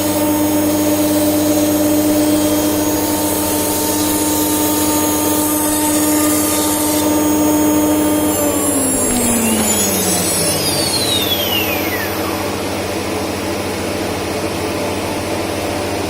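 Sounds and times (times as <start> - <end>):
machine noise: 0.0 - 16.0
router spindle whining: 2.2 - 14.4.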